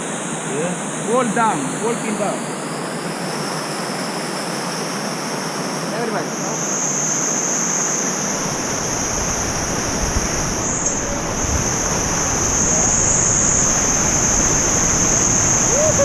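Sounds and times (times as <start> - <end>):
waterfall rushing: 8.3 - 16.0
wind buffeting microphone: 8.4 - 16.0.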